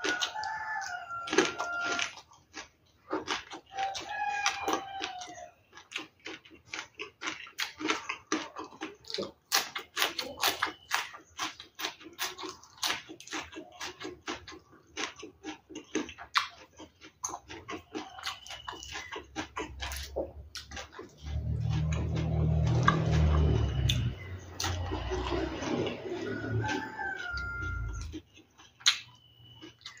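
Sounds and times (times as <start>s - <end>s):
rooster crowing: 0.0s - 2.2s, 3.7s - 5.6s, 21.8s - 28.2s
wet chewing and lip smacking: 0.0s - 30.0s.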